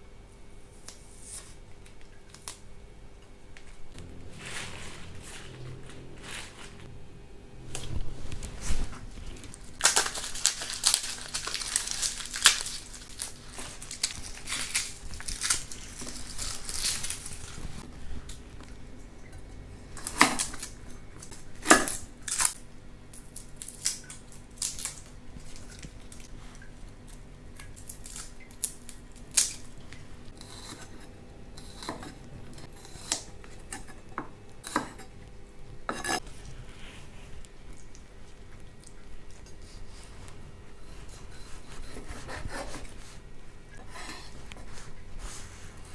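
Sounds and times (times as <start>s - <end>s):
dense rustling and crinkling: 3.8s - 6.9s, 7.7s - 18.0s.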